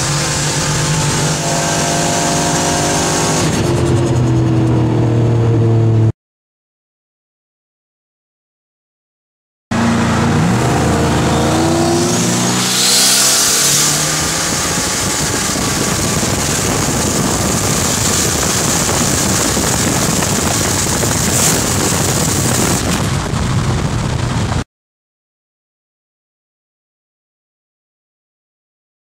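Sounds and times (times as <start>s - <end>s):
wind rush at high speed: 0.0s - 6.0s, 9.8s - 24.6s
engine at full throttle: 0.0s - 6.1s, 9.7s - 24.6s.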